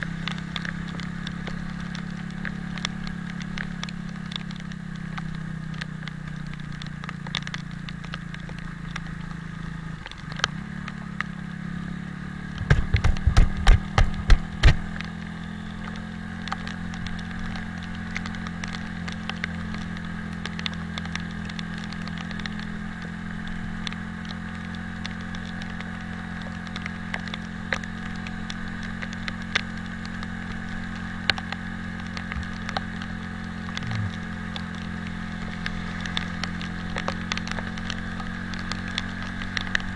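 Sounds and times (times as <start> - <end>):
motorcycle engine running: 0.0 - 39.9
light ticks: 0.1 - 11.4, 12.5 - 39.9
loud low thumps: 12.6 - 15.0, 33.8 - 34.2.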